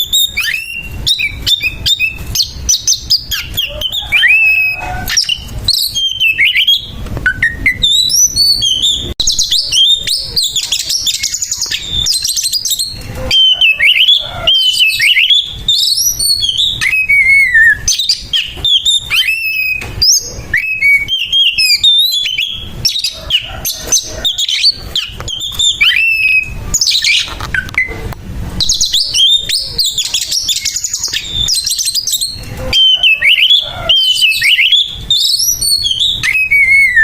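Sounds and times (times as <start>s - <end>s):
songbird singing: 0.0s - 28.0s, 28.6s - 37.0s.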